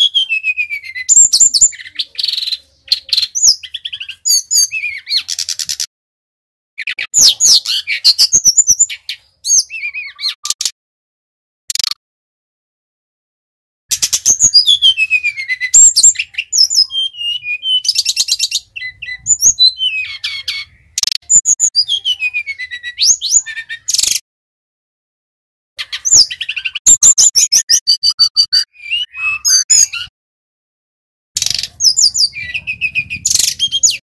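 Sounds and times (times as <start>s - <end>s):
bird trilling and whistling: 0.0s - 5.9s, 6.8s - 10.8s, 13.9s - 24.2s, 25.8s - 30.1s, 31.4s - 34.0s.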